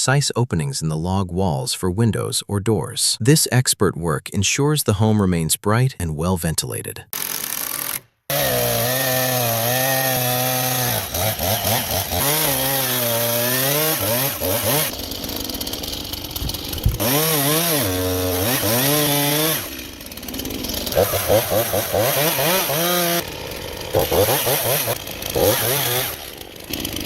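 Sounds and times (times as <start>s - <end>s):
chainsaw cutting wood: 7.1s - 27.0s.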